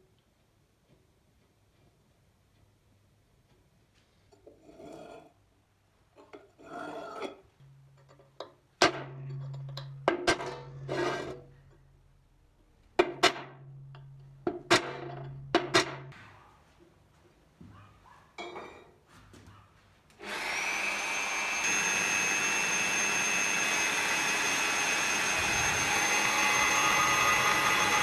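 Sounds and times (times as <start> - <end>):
metal scraping strokes: 20.2 - 28.0.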